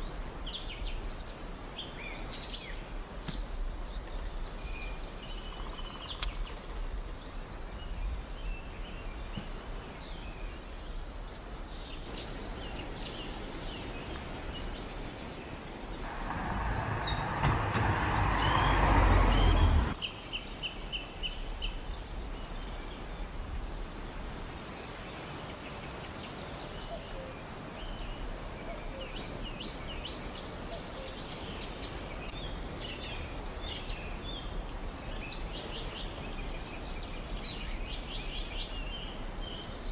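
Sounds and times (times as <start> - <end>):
birds chirping: 15.9 - 20.0
loud rushing noise: 16.1 - 20.0.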